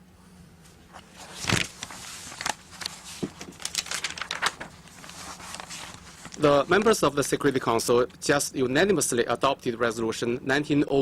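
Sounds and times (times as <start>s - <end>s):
low steady hum: 0.0s - 11.0s
papers rustling: 0.9s - 7.4s.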